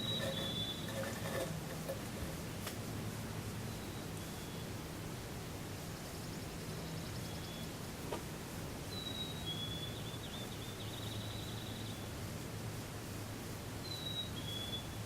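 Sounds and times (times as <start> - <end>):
songbird whistling: 0.0 - 0.9, 8.9 - 11.9, 13.8 - 15.0
bird trilling: 0.0 - 1.1.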